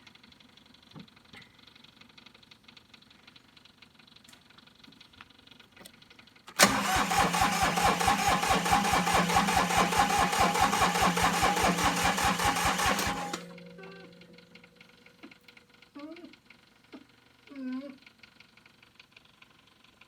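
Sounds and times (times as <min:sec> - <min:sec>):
tractor diesel engine starting: 0:06.5 - 0:15.2.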